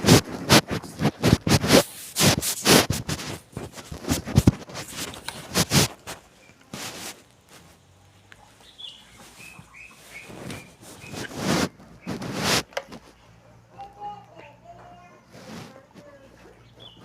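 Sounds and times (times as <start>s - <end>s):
scratching and scraping: 0.0s - 17.0s.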